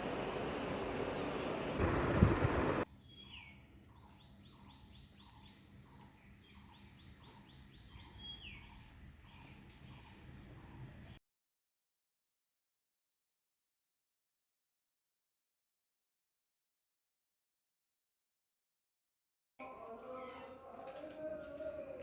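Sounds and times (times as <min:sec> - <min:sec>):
loud rushing noise: 0:00.0 - 0:02.8.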